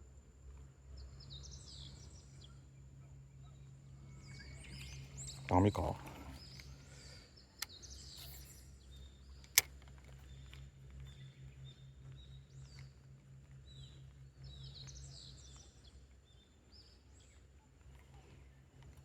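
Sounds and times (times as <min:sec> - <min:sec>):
small birds chirping: 0:00.9 - 0:19.0
low hum: 0:01.0 - 0:19.0
sharp click: 0:07.6 - 0:08.6, 0:09.4 - 0:10.6.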